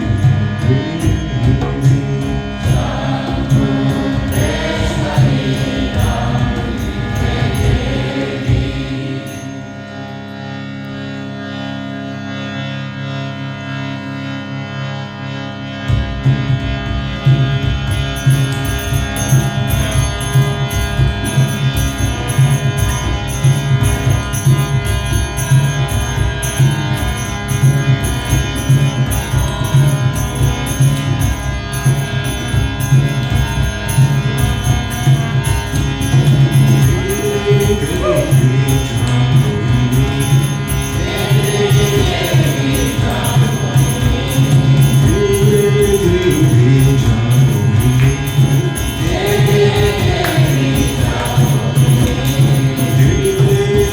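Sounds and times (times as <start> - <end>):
jingling rhythm: 0.0 - 10.4, 17.3 - 53.9
droning instrument: 0.0 - 53.9
voices chanting: 2.6 - 9.7, 36.7 - 47.3, 48.8 - 53.9.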